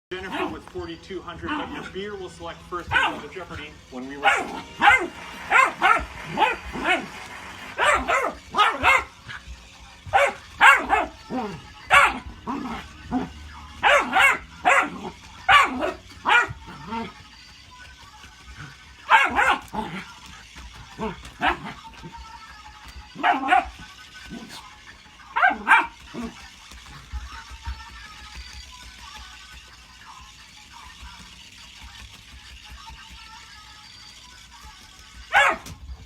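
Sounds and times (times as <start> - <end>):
dog barking and yipping: 0.1 - 2.0, 2.6 - 27.1, 35.1 - 35.8.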